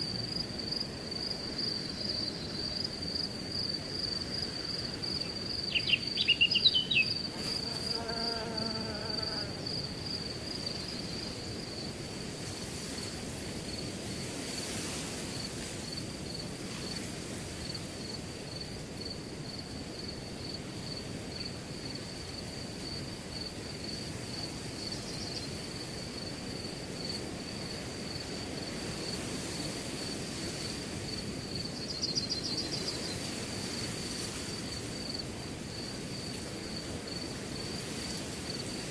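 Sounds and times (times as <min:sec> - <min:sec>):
cricket chirping trill: 0:00.0 - 0:13.0, 0:15.3 - 0:38.9
bird chirping: 0:05.7 - 0:07.2
wind rustling grass: 0:09.6 - 0:38.9.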